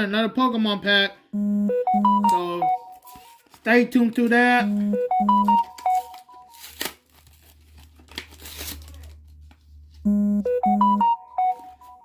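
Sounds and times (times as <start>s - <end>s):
electronic beeping jingle: 1.4s - 3.1s, 4.7s - 6.1s, 10.1s - 12.0s
foil wrapper crinkling and tearing: 3.1s - 4.3s, 5.7s - 9.6s.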